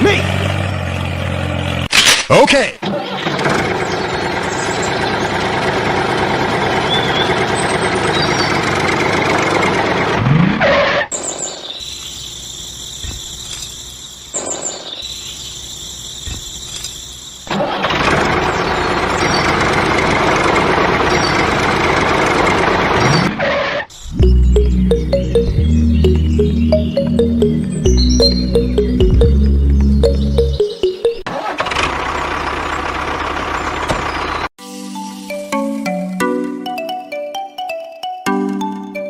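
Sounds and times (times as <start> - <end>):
miniature tractor engine drone: 2.8 - 10.4, 17.4 - 23.3, 31.3 - 34.5.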